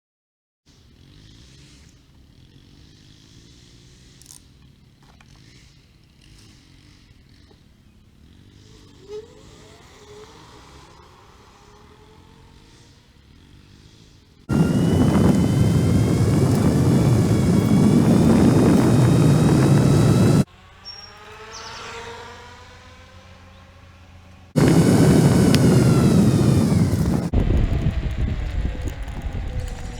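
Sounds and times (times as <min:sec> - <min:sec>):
vehicle rushing noise with whine: 0:14.5 - 0:23.6, 0:24.2 - 0:29.9.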